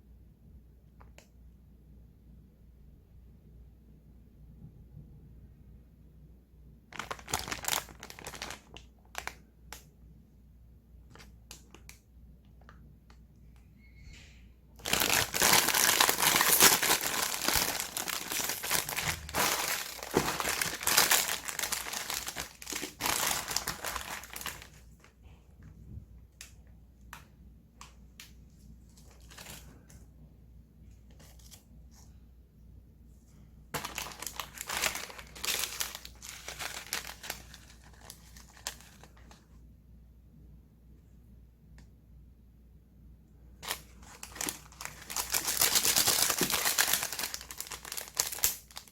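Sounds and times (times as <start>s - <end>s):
plastic packaging crinkling: 6.9s - 9.4s, 14.8s - 25.1s, 28.9s - 29.9s, 33.8s - 39.4s, 43.6s - 48.9s.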